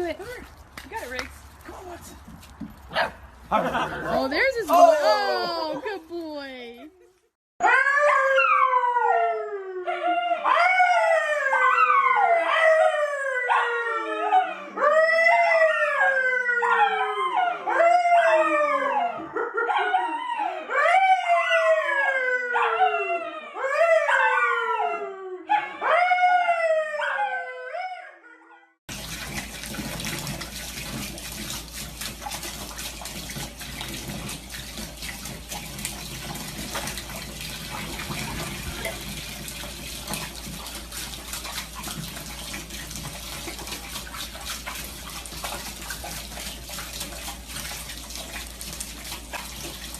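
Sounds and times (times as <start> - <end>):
running water: 0.0 - 7.0, 28.9 - 49.9
dog howling: 7.6 - 28.5.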